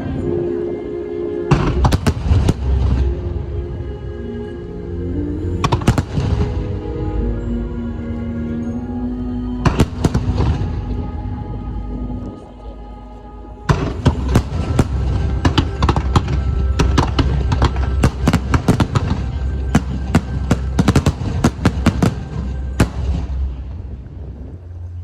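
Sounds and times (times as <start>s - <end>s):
music playing: 0.0s - 25.0s
deep rumble: 1.5s - 25.0s
fireworks bangs and crackles: 1.8s - 3.1s, 5.7s - 6.6s, 9.7s - 11.0s, 13.7s - 24.3s.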